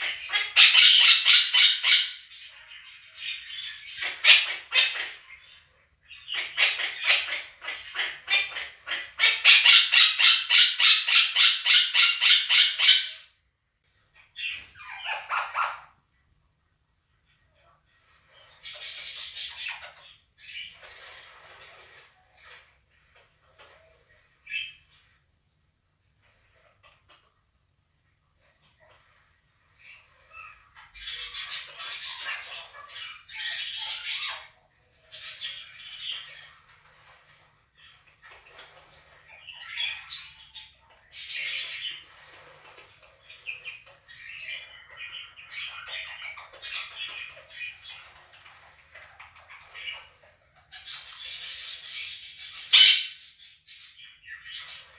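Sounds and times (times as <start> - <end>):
budgerigar flock chirping: 0.0 - 13.2, 14.4 - 15.8, 50.8 - 54.9
parrots chirping and squawking: 0.0 - 13.4, 14.1 - 16.1, 17.4 - 25.2, 28.5 - 54.9.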